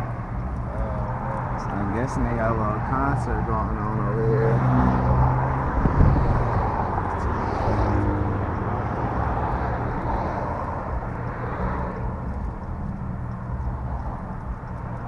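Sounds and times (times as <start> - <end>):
car engine rumble: 0.0 - 15.0
road noise: 0.0 - 15.0.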